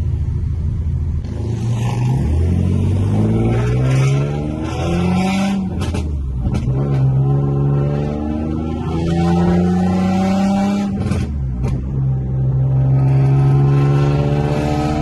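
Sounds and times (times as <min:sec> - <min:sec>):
car engine accelerating hard: 0:01.2 - 0:15.0
exhaust pops: 0:05.7 - 0:07.1.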